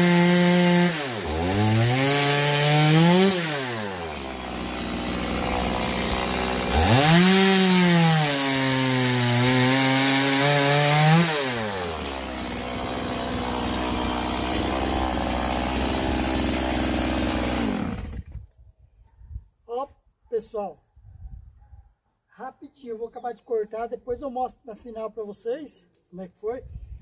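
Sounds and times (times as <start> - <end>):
chainsaw revving and cutting wood: 0.0 - 18.4.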